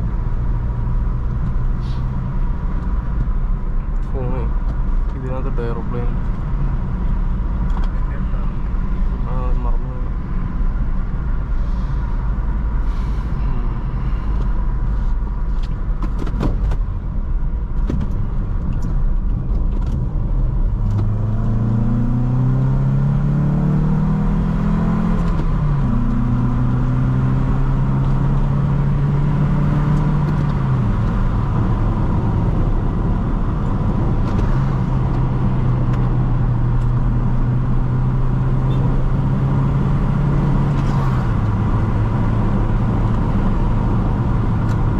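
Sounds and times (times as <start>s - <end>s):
road rumble: 0.0s - 44.9s
car engine revving: 19.7s - 44.9s.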